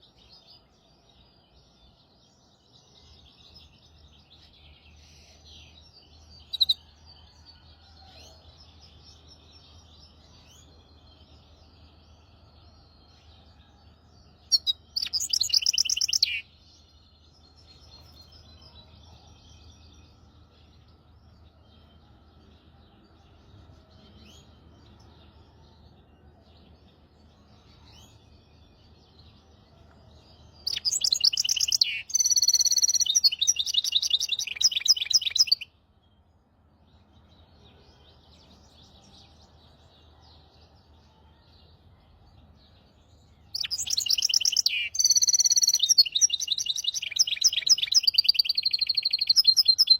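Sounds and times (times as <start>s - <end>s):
finch singing fast trills: 14.5s - 16.5s, 30.6s - 35.7s, 43.6s - 49.9s.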